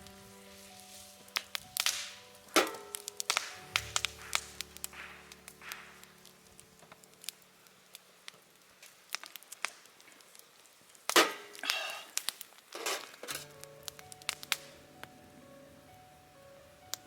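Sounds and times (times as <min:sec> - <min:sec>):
scraping rustling strokes: 0:00.0 - 0:06.4
background music: 0:00.0 - 0:08.2, 0:13.3 - 0:17.0.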